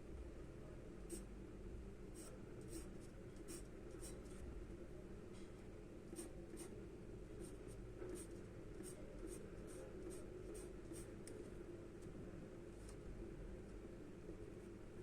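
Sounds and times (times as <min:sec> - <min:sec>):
faint steady hum: 0:00.0 - 0:15.0
charcoal scratching on paper: 0:02.2 - 0:04.2.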